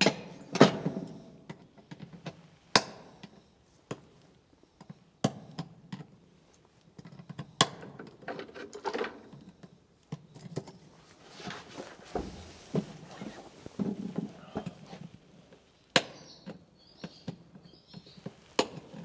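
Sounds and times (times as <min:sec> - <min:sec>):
scraping: 0:11.0 - 0:15.0.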